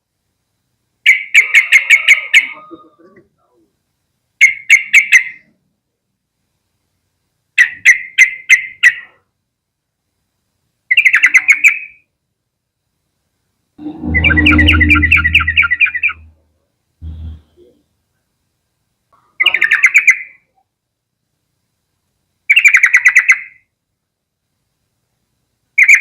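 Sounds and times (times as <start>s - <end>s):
bird chattering: 13.8s - 16.3s.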